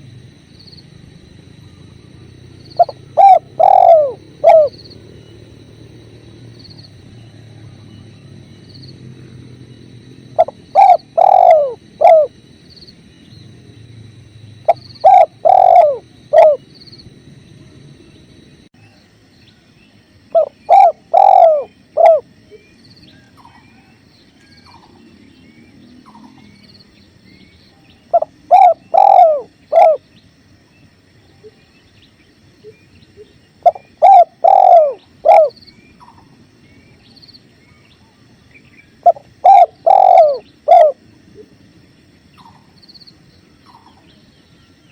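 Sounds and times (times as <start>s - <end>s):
small birds chirping: 0.5s - 17.1s, 18.0s - 44.9s
dove cooing: 1.6s - 5.7s, 10.3s - 12.4s, 14.6s - 16.7s, 20.3s - 23.9s, 28.0s - 30.2s, 32.6s - 36.3s, 38.9s - 41.5s.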